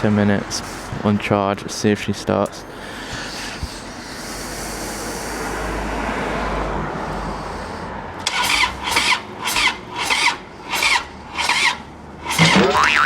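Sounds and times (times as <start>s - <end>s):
motorcycle engine cranking slowly: 8.2s - 13.0s.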